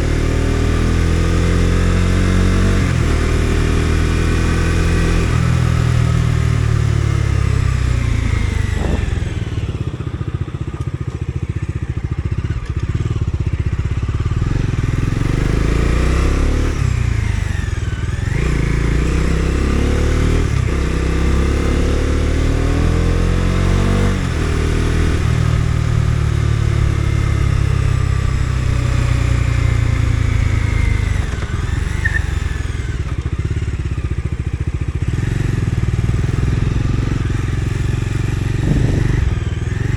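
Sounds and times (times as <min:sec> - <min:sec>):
motorcycle engine: 0:00.0 - 0:39.9
wind noise: 0:06.7 - 0:09.8, 0:38.3 - 0:39.9.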